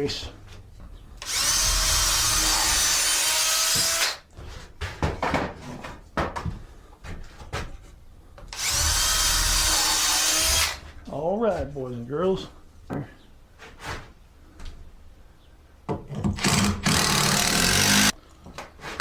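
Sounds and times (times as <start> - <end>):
power drill drilling into wood: 1.2 - 4.2, 8.6 - 10.8, 16.4 - 18.1.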